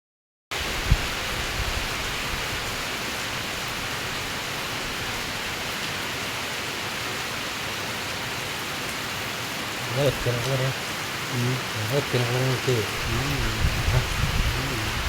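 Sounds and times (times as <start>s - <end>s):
steady rain: 0.5s - 15.0s
low thumps: 12.9s - 15.0s.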